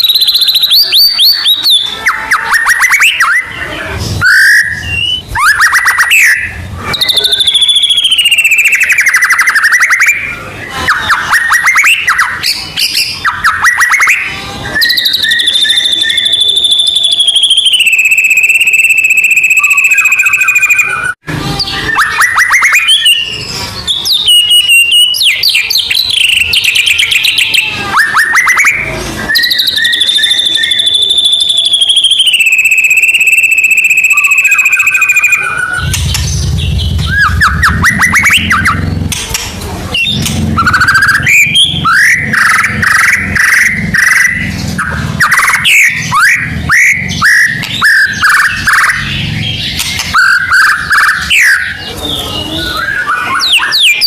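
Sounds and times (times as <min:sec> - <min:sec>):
songbird trills and whistles: 0:00.0 - 0:38.8, 0:39.9 - 0:54.0.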